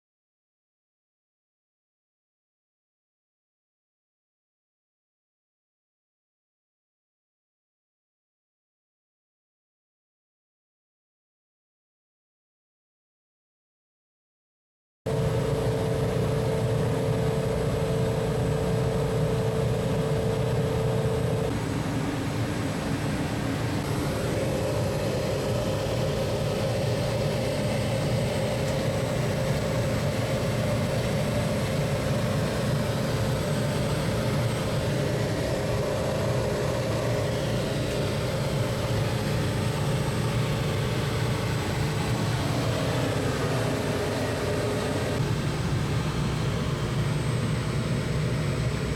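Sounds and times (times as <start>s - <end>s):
air conditioner humming: 15.1s - 48.9s
high whine: 15.1s - 48.9s.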